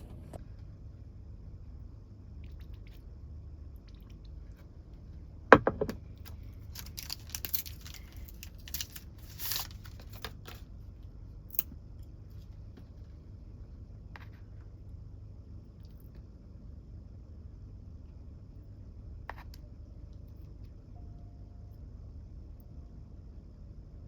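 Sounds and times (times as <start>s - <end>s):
sharp knock: 5.6s - 6.0s
plastic packaging crinkling: 6.6s - 10.6s.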